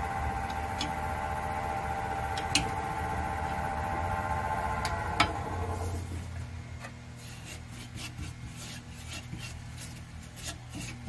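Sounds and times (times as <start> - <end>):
wood lathe motor hum: 0.0 - 6.4
lathe switch click: 2.3 - 2.8
scraping and rubbing on wood: 6.8 - 11.0.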